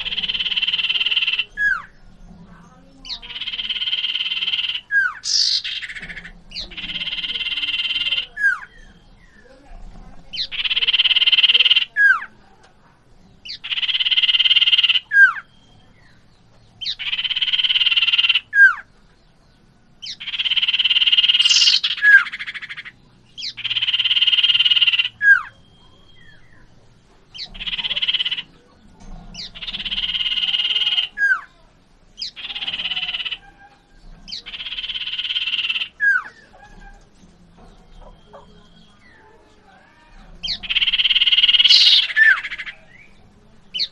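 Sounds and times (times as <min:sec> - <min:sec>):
songbird buzzy trill call: 0:00.0 - 0:02.0, 0:03.0 - 0:09.4, 0:16.8 - 0:18.9, 0:20.0 - 0:26.7, 0:27.4 - 0:28.6, 0:29.4 - 0:31.5, 0:32.2 - 0:37.0, 0:37.9 - 0:43.1.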